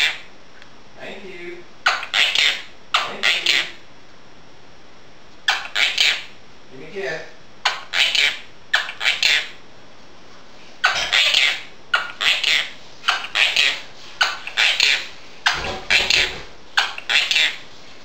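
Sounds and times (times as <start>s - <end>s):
parrot chattering: 0.0s - 0.3s, 1.8s - 3.8s, 5.4s - 6.4s, 7.6s - 9.6s, 10.8s - 17.7s.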